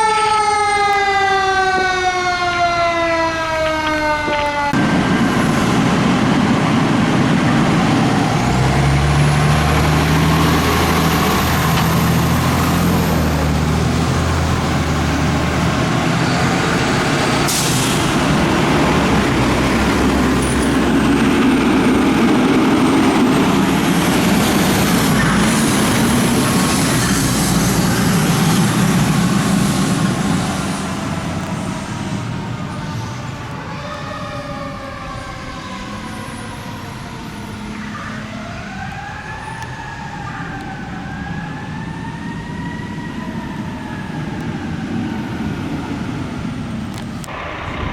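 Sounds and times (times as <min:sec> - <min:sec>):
fire truck siren: 0:00.0 - 0:47.9
truck engine running: 0:04.0 - 0:32.7
air hiss: 0:17.5 - 0:18.2.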